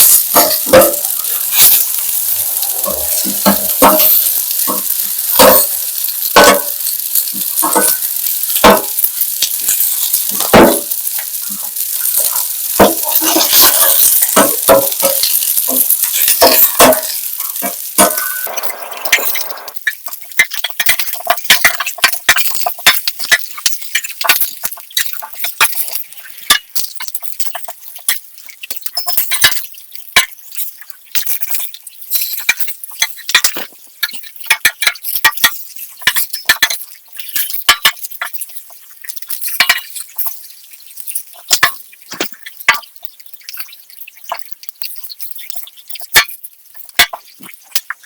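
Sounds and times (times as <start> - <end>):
utensils clinking against dishes: 0.0 - 27.7, 28.9 - 29.7.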